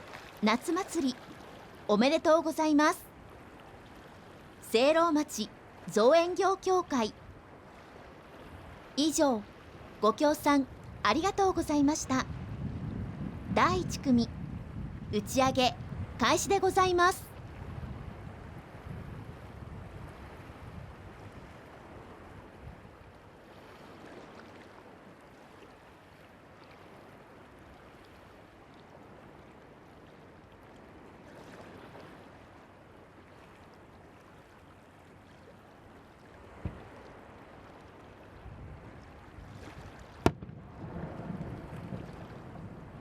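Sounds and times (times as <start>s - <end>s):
surf washing on shore: 0.0s - 43.0s
wind on microphone: 9.8s - 23.0s, 38.4s - 43.0s
firework bang: 40.2s - 41.2s
dull thud: 40.3s - 40.6s.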